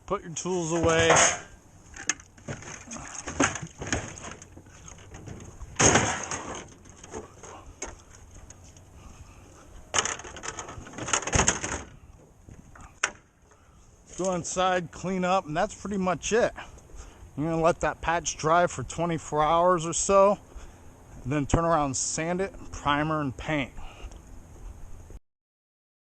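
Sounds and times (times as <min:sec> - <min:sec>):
hand tools clattering and scraping: 0:00.5 - 0:08.9, 0:09.8 - 0:11.8.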